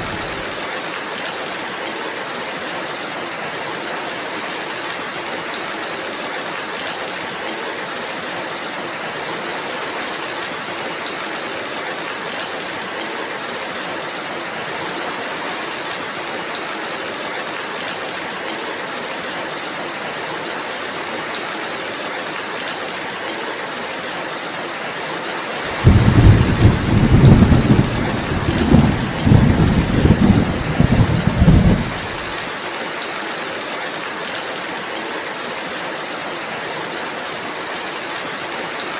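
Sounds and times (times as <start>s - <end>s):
steady rain: 0.0s - 38.9s
thunder rumbling: 25.7s - 32.4s.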